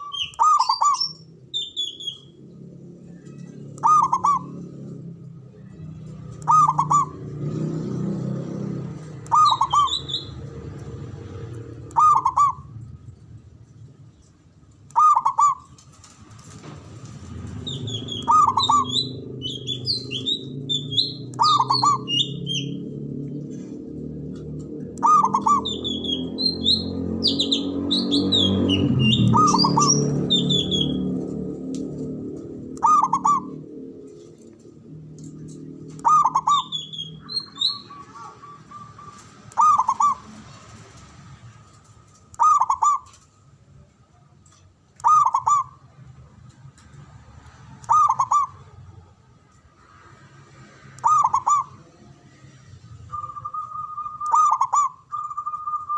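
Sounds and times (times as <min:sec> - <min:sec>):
dove cooing: 0:00.0 - 0:01.2, 0:03.3 - 0:04.9, 0:06.4 - 0:07.6, 0:09.2 - 0:10.4, 0:11.8 - 0:12.8, 0:14.9 - 0:15.7, 0:17.7 - 0:22.8, 0:24.9 - 0:31.2, 0:32.4 - 0:34.1, 0:35.5 - 0:40.5, 0:42.4 - 0:43.2, 0:45.0 - 0:45.8, 0:47.8 - 0:49.0, 0:51.0 - 0:52.2, 0:53.1 - 0:55.9
small bird chirping: 0:00.0 - 0:07.6, 0:09.0 - 0:11.0, 0:17.5 - 0:22.9, 0:24.9 - 0:31.2, 0:35.2 - 0:40.4.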